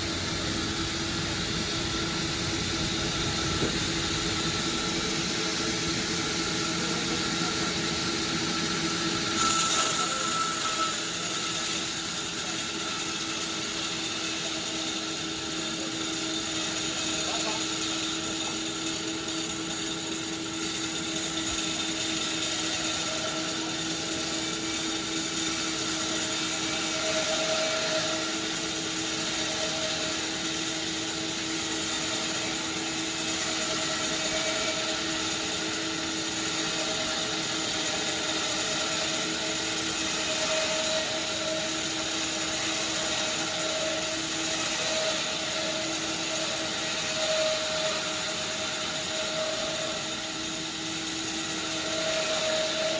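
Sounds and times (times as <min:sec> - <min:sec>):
high machine whine: 0:00.0 - 0:52.9
sawmill machinery drone: 0:00.0 - 0:52.9.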